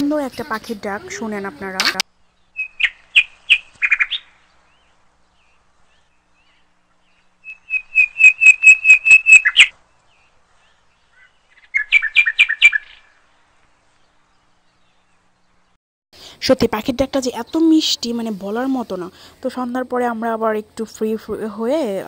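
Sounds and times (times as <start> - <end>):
bird singing high notes: 7.4 - 9.7.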